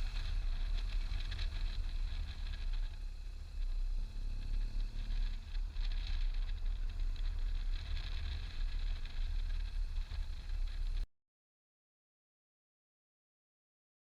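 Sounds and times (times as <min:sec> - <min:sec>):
motorcycle riding: 0:00.0 - 0:11.0
wind buffeting microphone: 0:00.0 - 0:11.0.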